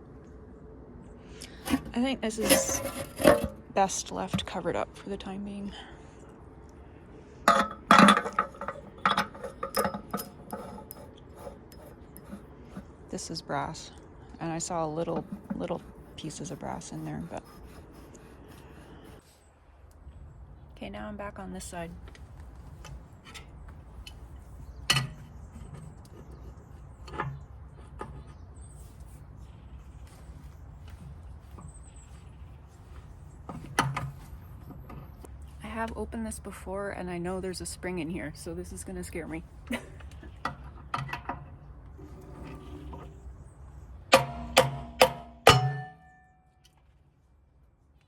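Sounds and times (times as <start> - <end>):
low steady hum: 0.0 - 48.0
metal parts clinking: 7.5 - 11.1.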